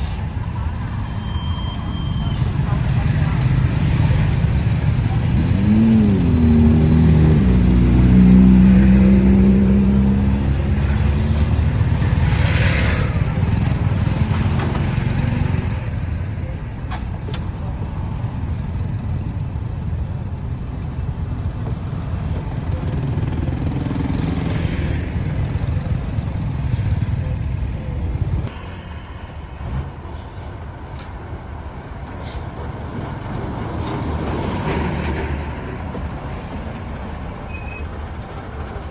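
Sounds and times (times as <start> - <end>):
vehicle engine running: 0.0 - 16.8, 17.4 - 28.5
traffic rumble: 0.0 - 38.9.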